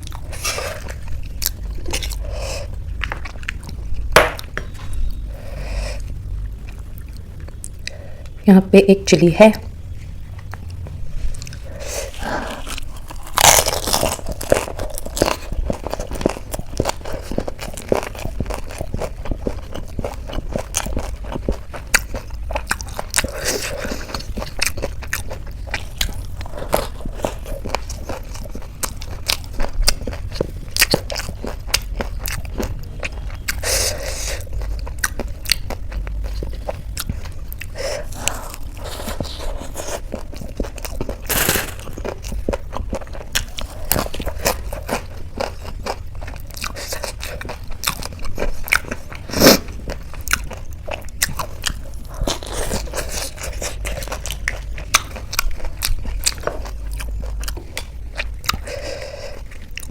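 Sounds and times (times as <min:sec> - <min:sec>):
crunchy food chewing: 0:10.1 - 0:59.9.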